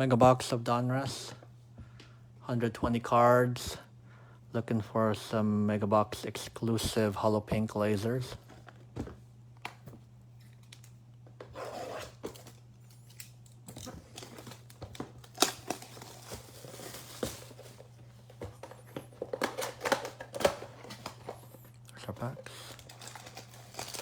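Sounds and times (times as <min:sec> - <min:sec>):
cardboard tearing: 0:11.5 - 0:12.5
plastic wrap crinkling: 0:13.8 - 0:18.0, 0:22.2 - 0:24.0.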